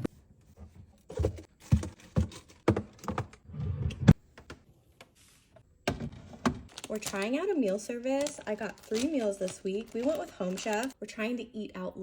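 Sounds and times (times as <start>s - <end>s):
groceries knocking and clacking: 0.6s - 3.4s, 5.8s - 11.0s.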